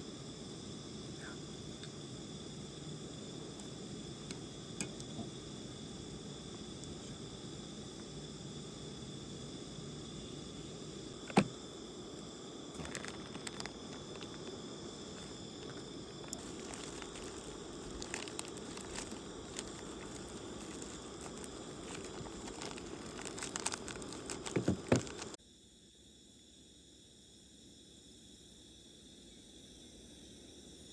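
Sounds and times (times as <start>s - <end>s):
campfire crackling and popping: 11.2s - 25.4s.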